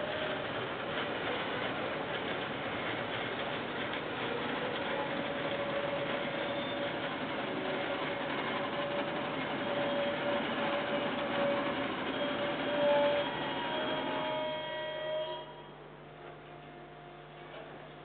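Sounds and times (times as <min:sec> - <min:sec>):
freight train wheels on rail: 0:00.0 - 0:15.6.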